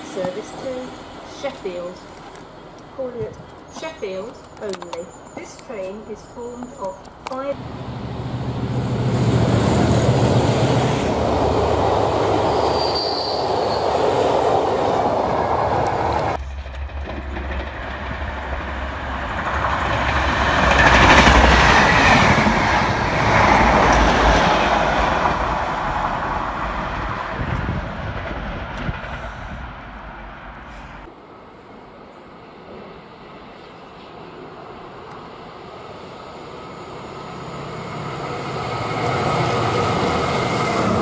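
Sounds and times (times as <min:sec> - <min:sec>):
train wheels rumbling on rails: 0:00.0 - 0:31.2, 0:37.2 - 0:41.0
wheel squeal: 0:12.5 - 0:13.9.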